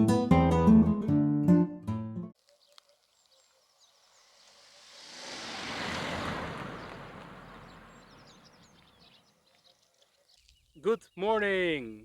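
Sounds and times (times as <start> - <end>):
vehicle passing by: 3.9 - 9.4.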